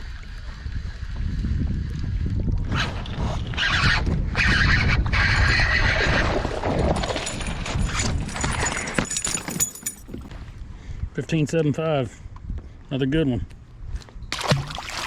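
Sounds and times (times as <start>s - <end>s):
water splashing: 14.3s - 15.0s.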